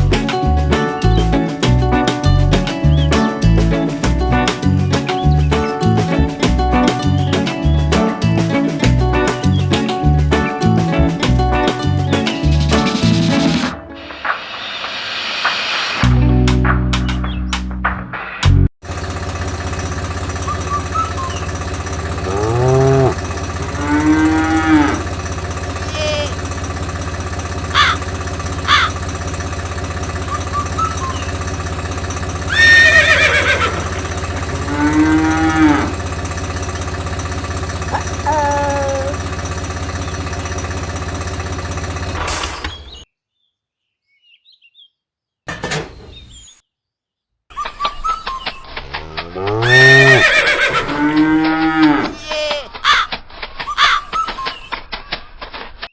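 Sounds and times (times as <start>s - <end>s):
low motor hum: 18.8s - 42.4s, 48.8s - 52.2s
cattle mooing: 22.0s - 26.3s, 32.5s - 36.1s, 37.8s - 39.2s, 48.9s - 52.2s.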